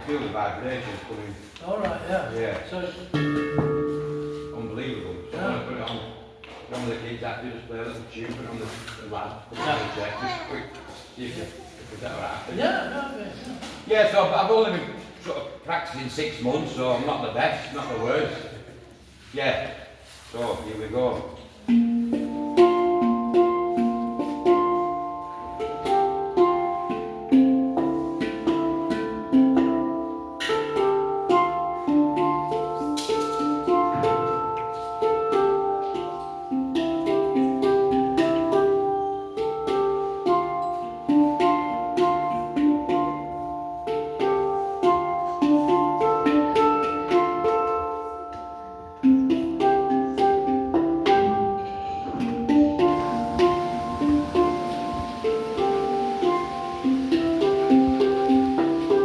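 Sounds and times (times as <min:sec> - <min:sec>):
handpan melody: 0:03.0 - 0:11.8, 0:20.1 - 0:59.0.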